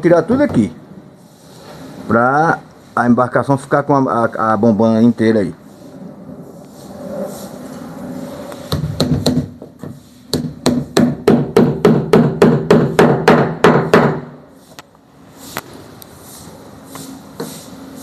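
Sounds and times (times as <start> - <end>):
hammering on wood: 8.7 - 14.4.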